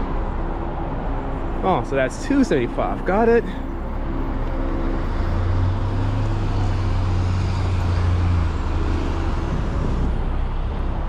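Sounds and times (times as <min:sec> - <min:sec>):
highway traffic noise: 0:00.0 - 0:11.0
vehicle passing: 0:02.3 - 0:10.6.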